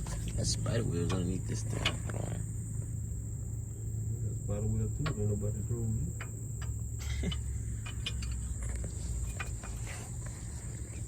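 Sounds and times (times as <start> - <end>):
crickets trilling: 0.0 - 11.0
low hum: 0.0 - 11.0
light clicks and knocks: 6.1 - 11.0.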